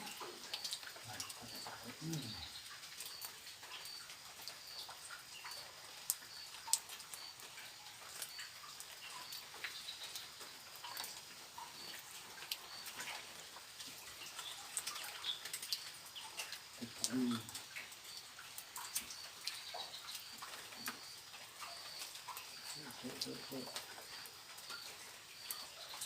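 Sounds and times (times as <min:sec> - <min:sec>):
small animal calls: 0:00.0 - 0:03.2, 0:16.2 - 0:17.7.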